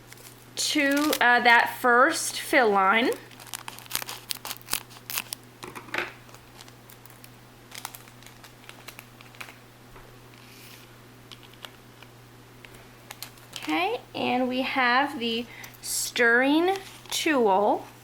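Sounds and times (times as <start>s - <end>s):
plastic packet crinkling: 0.0s - 1.4s, 2.8s - 9.6s, 13.0s - 13.8s, 16.6s - 17.2s.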